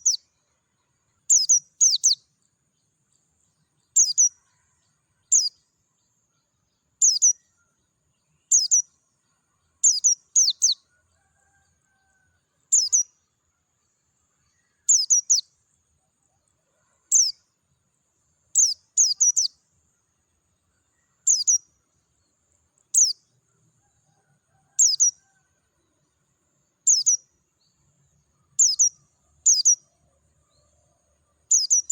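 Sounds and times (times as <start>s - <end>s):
bird chirping: 0.0s - 31.9s.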